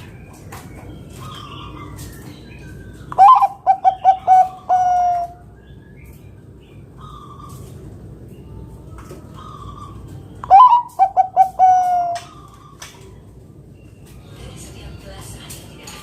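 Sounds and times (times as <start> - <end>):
dove cooing: 3.1 - 5.4, 9.3 - 12.8
faint bird calls: 6.8 - 13.3.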